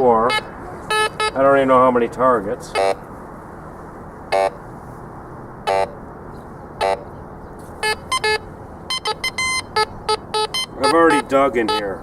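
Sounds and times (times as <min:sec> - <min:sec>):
metal detector beeps: 0:00.0 - 0:01.4, 0:02.7 - 0:03.0, 0:04.3 - 0:04.6, 0:05.7 - 0:06.0, 0:07.8 - 0:11.9.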